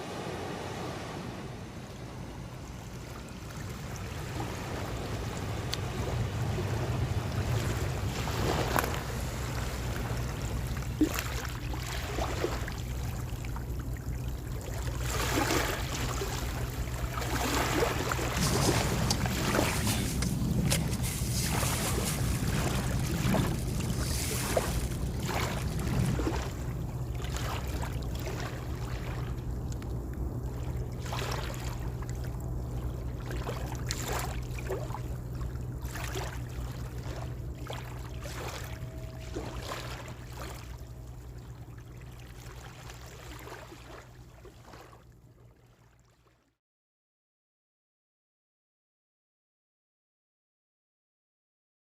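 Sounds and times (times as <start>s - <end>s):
low hum: 0.0s - 45.7s
water splashing and lapping: 0.0s - 46.4s.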